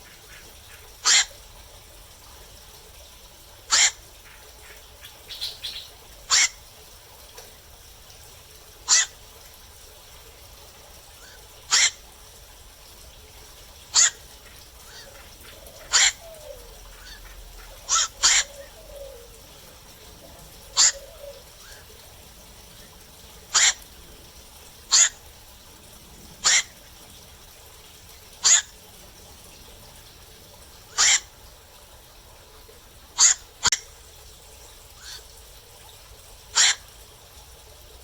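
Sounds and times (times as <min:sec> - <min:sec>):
heron kwok calls: 0:00.0 - 0:01.3, 0:03.7 - 0:04.0, 0:06.3 - 0:06.6, 0:08.9 - 0:09.2, 0:11.2 - 0:12.0, 0:13.9 - 0:14.2, 0:14.9 - 0:19.2, 0:20.6 - 0:21.8, 0:23.5 - 0:23.8, 0:24.9 - 0:25.2, 0:26.4 - 0:26.8, 0:28.4 - 0:28.7, 0:30.9 - 0:31.3, 0:33.2 - 0:33.9, 0:36.6 - 0:36.8.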